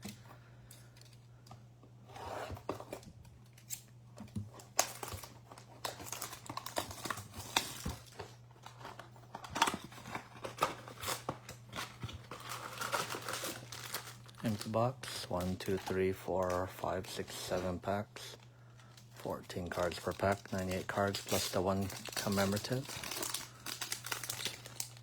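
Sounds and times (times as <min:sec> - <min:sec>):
cardboard and foil packs handled: 0:00.0 - 0:25.0
plastic wrap tearing and crinkling: 0:04.6 - 0:16.6, 0:18.8 - 0:25.0.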